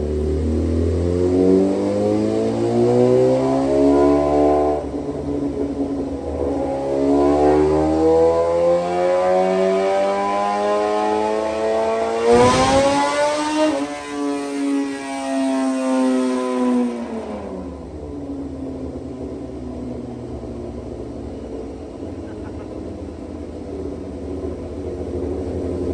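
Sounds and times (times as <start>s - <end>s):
motorcycle engine revving: 0.0s - 19.4s.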